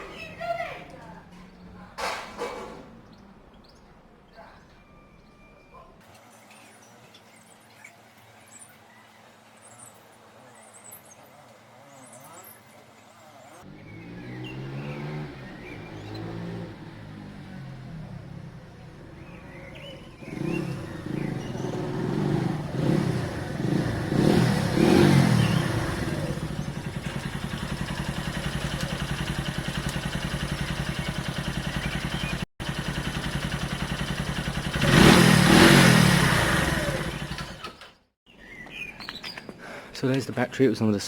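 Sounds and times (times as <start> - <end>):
small motorcycle engine revving: 13.6 - 38.1.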